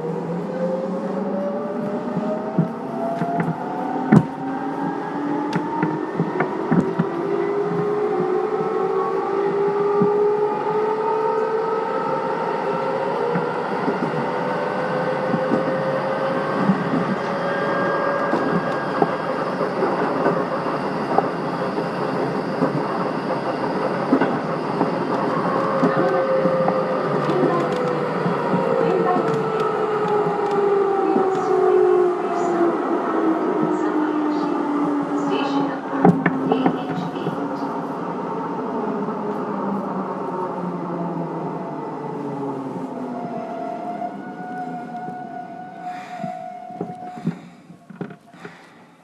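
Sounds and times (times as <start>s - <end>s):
wheels rumbling on rails: 0.0s - 49.0s
electric train motor whine: 0.1s - 35.4s.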